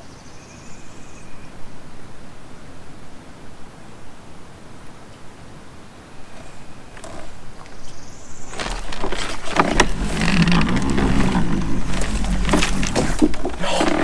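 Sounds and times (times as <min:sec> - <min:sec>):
rustling: 0:06.3 - 0:14.0
low rumble: 0:09.7 - 0:13.6.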